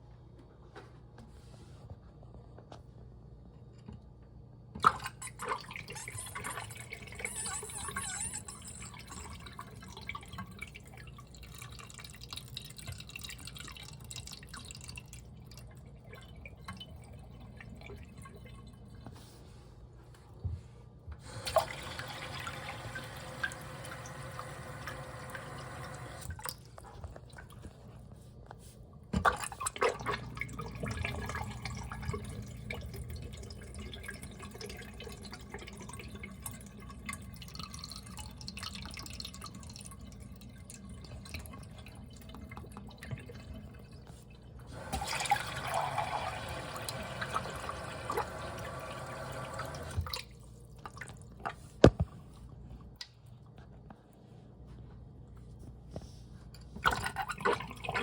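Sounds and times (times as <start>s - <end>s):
toilet flushing and trickling: 4.8s - 19.6s, 21.2s - 27.8s, 29.1s - 51.7s, 56.8s - 58.0s.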